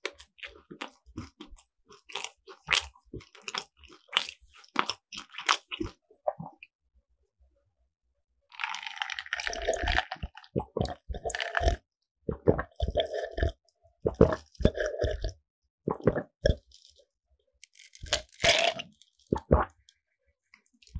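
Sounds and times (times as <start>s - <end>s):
wet chewing: 0.0s - 6.0s
crisp crunching bites: 17.7s - 19.2s.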